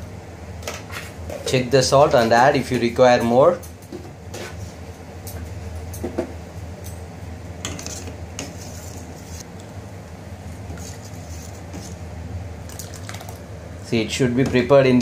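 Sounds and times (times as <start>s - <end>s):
steady low hum: 0.0s - 15.0s
spoon stirring batter: 10.6s - 12.0s.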